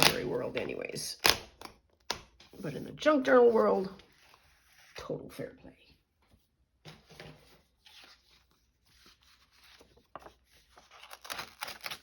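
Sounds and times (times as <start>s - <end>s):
paper pages rustling: 6.9s - 12.0s.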